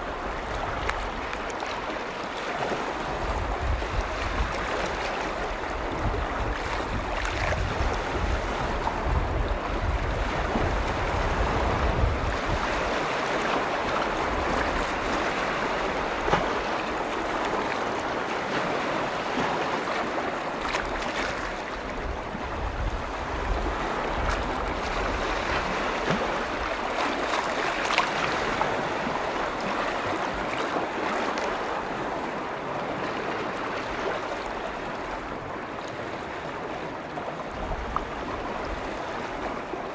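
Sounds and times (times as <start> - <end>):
lake waves lapping on shore: 0.0 - 39.9
wind buffeting microphone: 2.7 - 17.7, 20.3 - 32.4.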